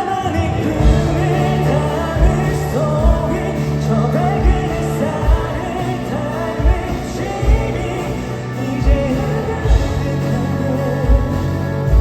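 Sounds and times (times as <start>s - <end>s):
person singing: 0.0s - 12.0s
pop-rock band music: 0.0s - 12.0s
kick drum beat: 2.2s - 3.5s, 6.6s - 8.0s.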